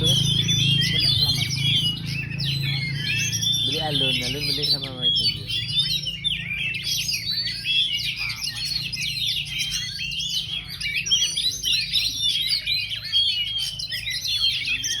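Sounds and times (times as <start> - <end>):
magpie-robin singing: 0.0 - 15.0.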